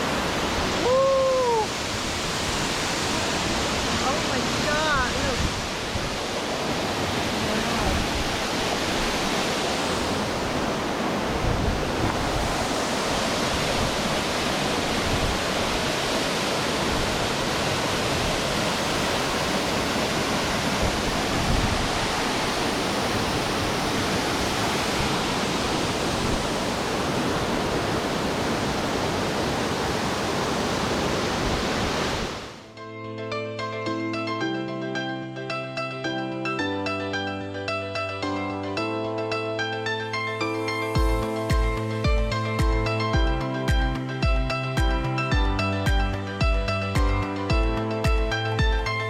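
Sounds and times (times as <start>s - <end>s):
waterfall rushing over rock: 0.0s - 32.6s.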